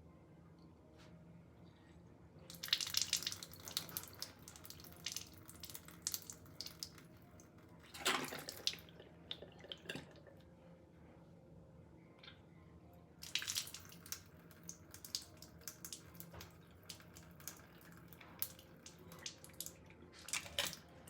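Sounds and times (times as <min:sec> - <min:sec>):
water splashing at a sink: 0:02.5 - 0:07.0, 0:07.8 - 0:10.2, 0:13.2 - 0:20.9.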